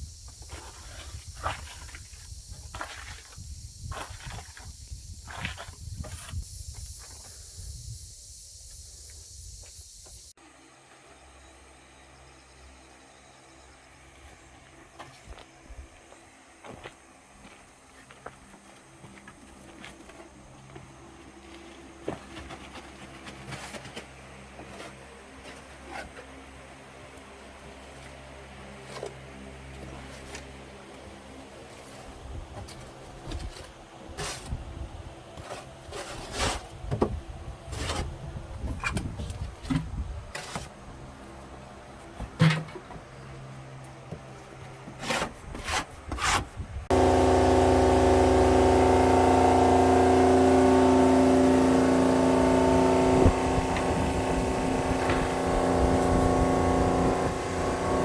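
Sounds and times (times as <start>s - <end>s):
loud machine drone: 46.9s - 58.0s.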